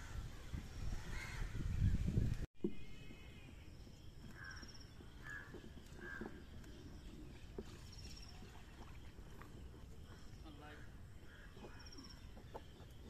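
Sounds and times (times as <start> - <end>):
faint bird calls: 2.7 - 13.0.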